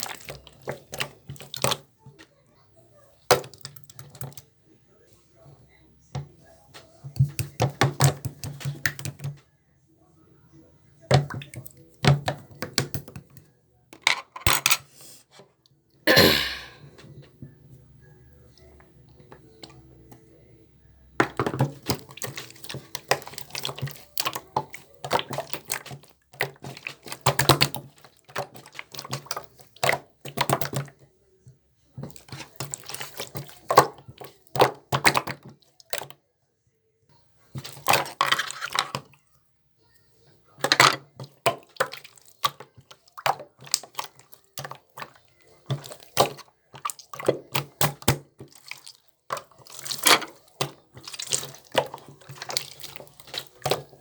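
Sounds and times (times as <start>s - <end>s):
water splashing and dripping: 41.7s - 54.0s.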